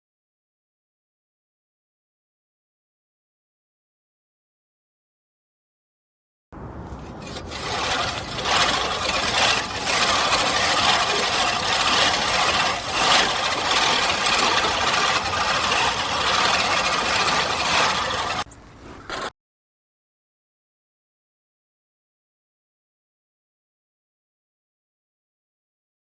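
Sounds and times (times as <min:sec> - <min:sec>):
reel mower blades whirring: 0:06.9 - 0:19.3.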